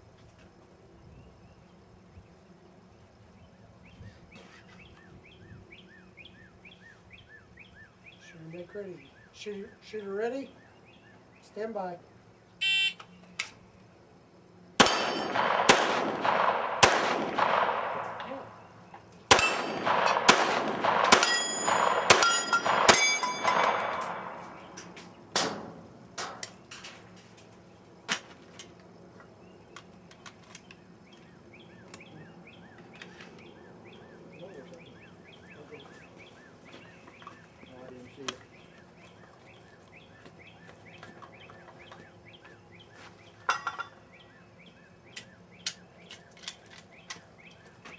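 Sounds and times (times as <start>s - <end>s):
bullets ringing on steel plates: 14.8s - 15.8s, 19.3s - 24.7s
rapid gunshots: 14.8s - 18.4s, 19.3s - 24.6s.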